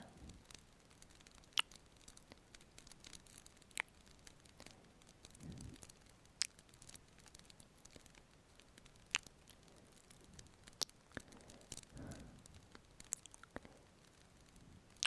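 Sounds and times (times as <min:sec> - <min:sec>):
faint fireplace crackle: 0:00.0 - 0:15.0
wet lip smacks: 0:09.1 - 0:09.6, 0:13.0 - 0:13.7.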